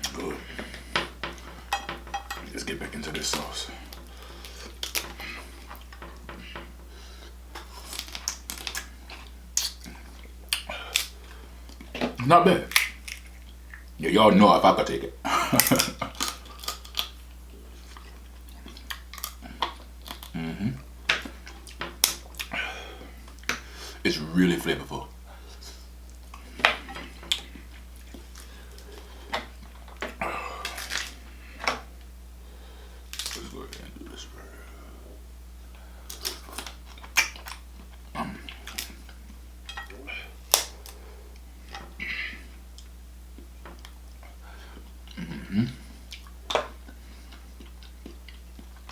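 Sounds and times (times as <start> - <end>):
steady low hum: 0.0 - 48.9
utensils clicking and clattering: 1.2 - 3.6
eating clicks and smacks: 2.5 - 6.7, 7.5 - 14.0, 15.5 - 17.2, 17.9 - 20.4, 21.1 - 22.6, 25.5 - 31.9, 36.1 - 41.9, 45.1 - 48.9.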